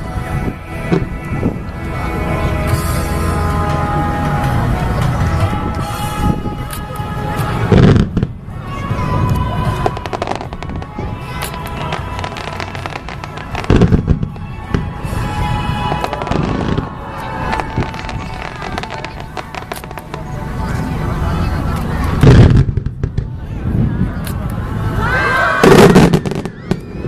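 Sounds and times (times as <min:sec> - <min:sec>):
music playing: 0:00.0 - 0:22.3
fireworks crackling: 0:00.0 - 0:24.6, 0:25.6 - 0:27.0
firework booms: 0:07.6 - 0:08.4, 0:09.8 - 0:20.2, 0:22.2 - 0:23.4, 0:25.6 - 0:27.0.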